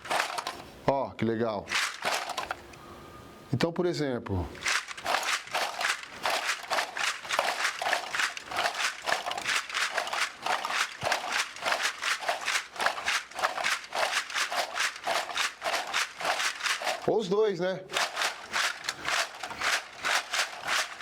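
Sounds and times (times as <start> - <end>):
plastic bottle shakers rattling: 0.0 - 0.7, 1.6 - 2.8, 4.5 - 17.3, 17.9 - 21.0.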